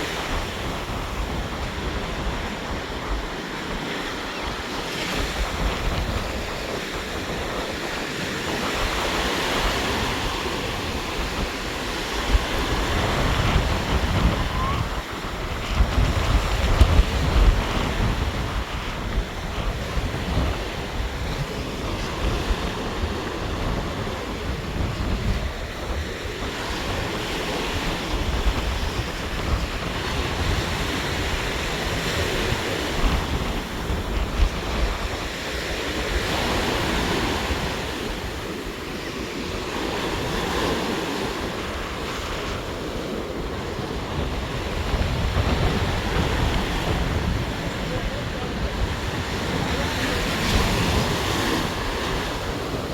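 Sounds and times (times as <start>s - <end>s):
rough sea surf breaking: 0.0s - 52.9s
wind buffeting microphone: 0.0s - 52.9s.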